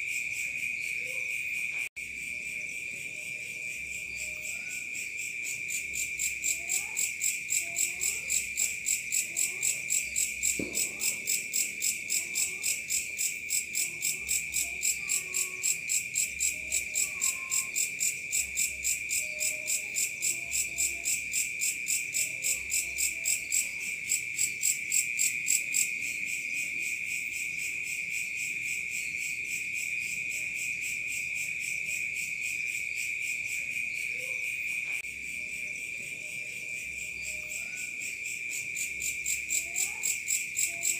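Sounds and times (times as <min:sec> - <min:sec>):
crickets trilling: 0:00.0 - 0:40.9
pulsing cricket chirp: 0:00.0 - 0:40.9.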